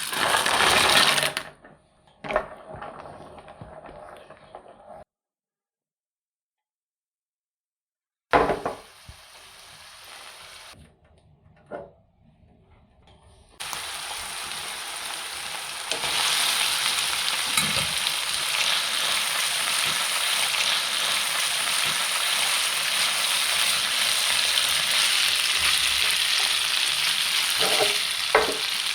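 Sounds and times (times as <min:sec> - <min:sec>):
food sizzling in a frying pan: 0:00.0 - 0:01.3, 0:08.5 - 0:10.8, 0:13.6 - 0:28.9.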